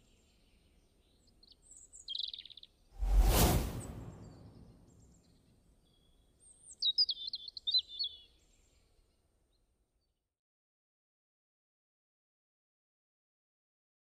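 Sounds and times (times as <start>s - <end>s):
rush of noise: 3.0s - 4.7s.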